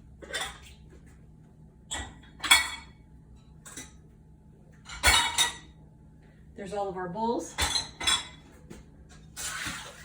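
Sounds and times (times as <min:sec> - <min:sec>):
bowls clinking in dishwasher rack: 0:01.9 - 0:03.0, 0:04.9 - 0:05.7, 0:07.5 - 0:08.5.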